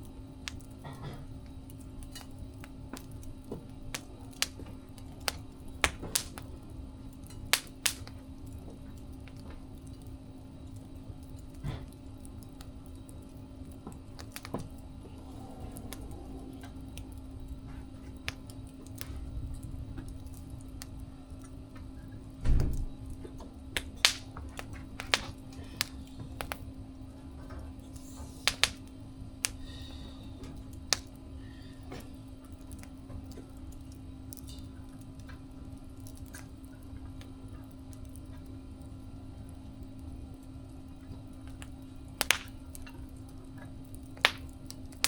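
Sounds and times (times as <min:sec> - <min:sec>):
steady low hum: 0:00.0 - 0:45.0
wood fire crackling: 0:00.0 - 0:45.0
sharp pops and snaps: 0:02.1 - 0:06.5, 0:07.5 - 0:10.1, 0:13.7 - 0:14.8, 0:18.1 - 0:19.5, 0:23.8 - 0:26.7, 0:27.9 - 0:29.7, 0:30.7 - 0:31.2, 0:41.4 - 0:45.0.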